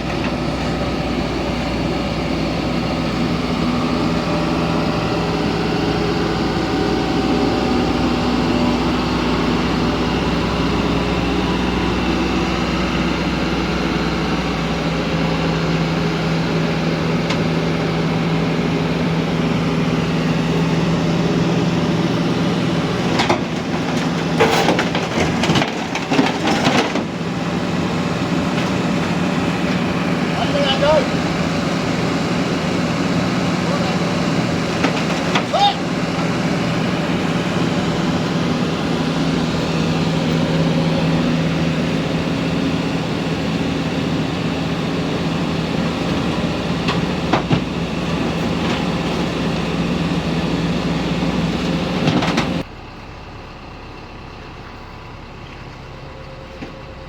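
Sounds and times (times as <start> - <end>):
excavator diesel engine running: 0.0 - 57.0
clanks and knocks: 23.0 - 27.2, 34.7 - 35.5, 46.1 - 49.3.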